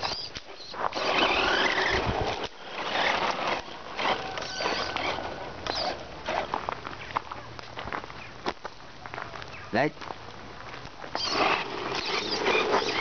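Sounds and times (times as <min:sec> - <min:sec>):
drivetrain whining: 0:00.0 - 0:06.8, 0:11.1 - 0:13.0
tyres crunching on gravel: 0:00.0 - 0:13.0.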